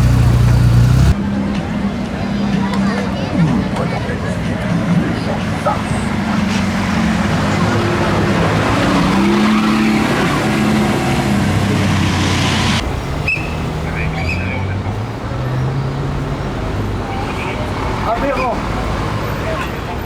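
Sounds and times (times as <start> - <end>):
sports car engine revving: 0.0 - 1.3, 5.9 - 16.6
voices: 0.0 - 20.0.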